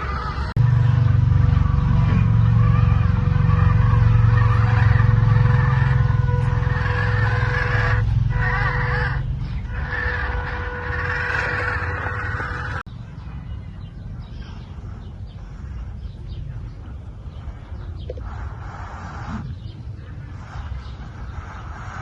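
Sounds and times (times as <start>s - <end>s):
rc car motors whining: 1.6s - 12.8s.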